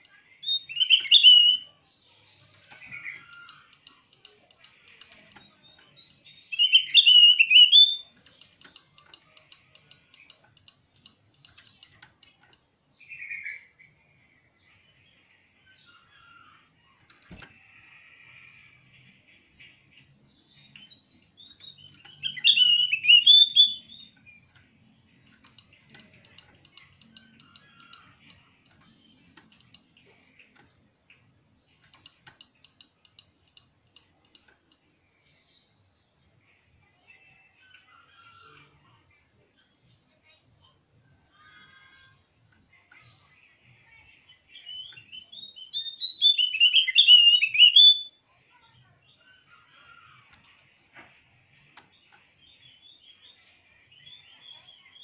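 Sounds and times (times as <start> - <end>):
bird song bursts: 0.3 - 4.0, 5.1 - 9.1, 17.5 - 24.6, 44.4 - 48.2.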